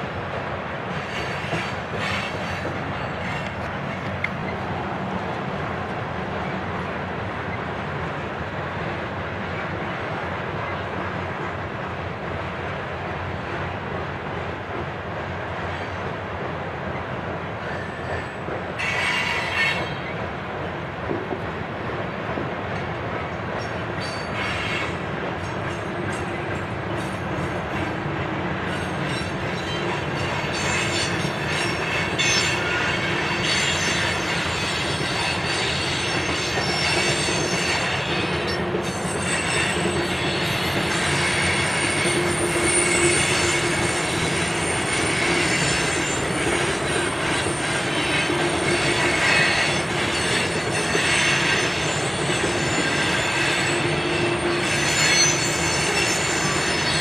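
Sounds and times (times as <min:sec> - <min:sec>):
steel wheels rumbling on rail: 0:00.0 - 0:57.0
high wheel squeal: 0:00.9 - 0:03.7, 0:17.7 - 0:20.1, 0:23.6 - 0:25.0, 0:28.7 - 0:57.0.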